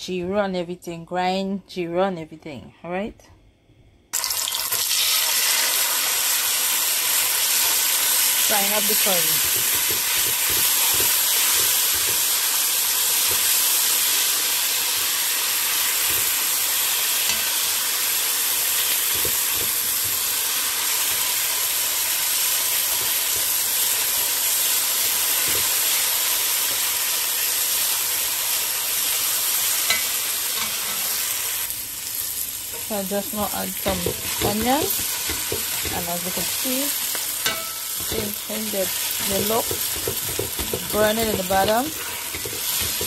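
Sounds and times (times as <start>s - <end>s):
curry paste sizzling in oil: 4.2s - 43.0s
spoon knocking against pot: 9.4s - 12.3s, 33.9s - 36.1s, 37.1s - 38.4s, 39.2s - 43.0s.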